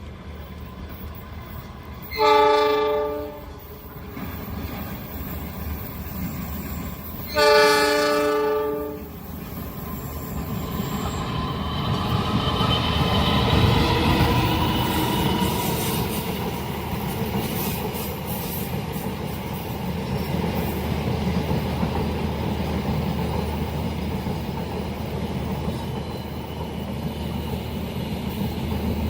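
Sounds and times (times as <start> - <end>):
train rumbling: 0.0 - 29.0
train horn blasts: 2.1 - 3.7, 7.3 - 9.2.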